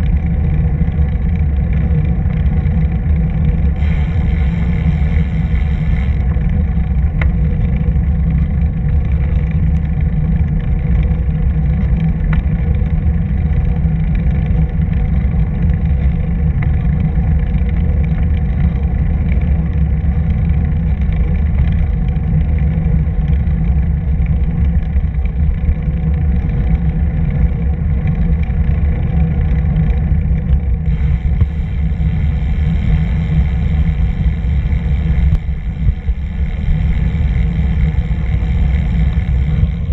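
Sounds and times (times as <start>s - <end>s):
wind buffeting microphone: 30.6s - 39.9s.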